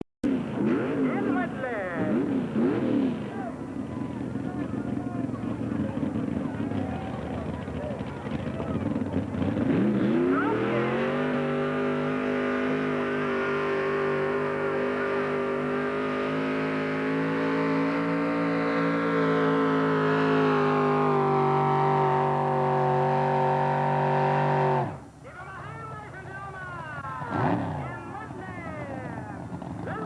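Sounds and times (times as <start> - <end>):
truck engine revving hard: 0.2 - 25.1, 27.0 - 30.0.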